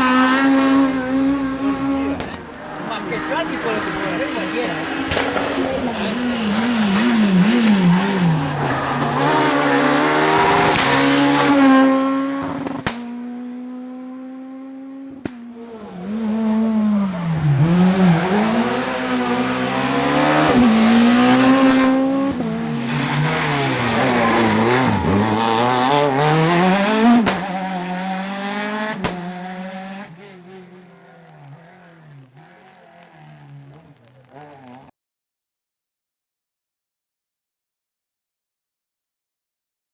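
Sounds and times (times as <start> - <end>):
rally car engine revving: 0.0 - 34.9.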